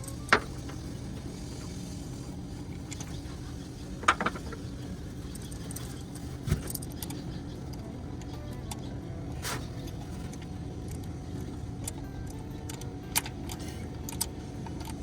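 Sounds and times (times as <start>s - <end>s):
steady low hum: 0.0s - 15.0s
metal tools clinking on engine parts: 4.0s - 4.7s.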